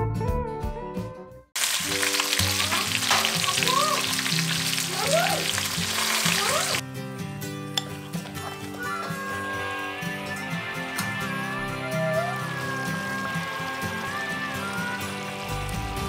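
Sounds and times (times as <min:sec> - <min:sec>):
meat sizzling in a pot: 0:01.6 - 0:06.8, 0:11.8 - 0:16.0
slide guitar music: 0:01.6 - 0:16.0.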